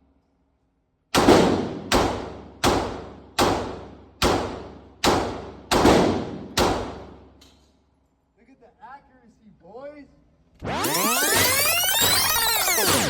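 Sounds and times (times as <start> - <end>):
gunshots echoing indoors: 1.1 - 7.4.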